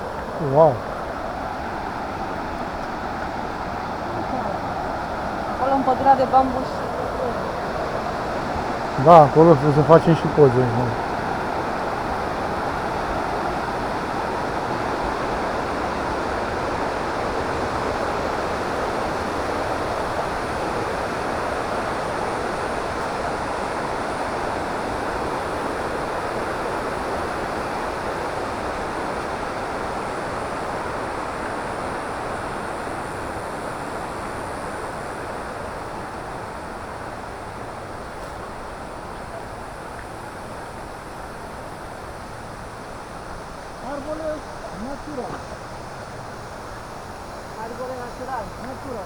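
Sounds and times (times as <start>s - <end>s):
river flowing over rocks: 0.0s - 49.0s.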